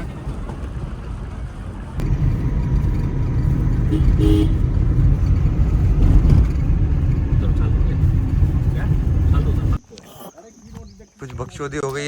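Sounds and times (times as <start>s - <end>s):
car interior rumble: 0.0s - 9.8s
two-tone car horn toot: 3.9s - 4.6s.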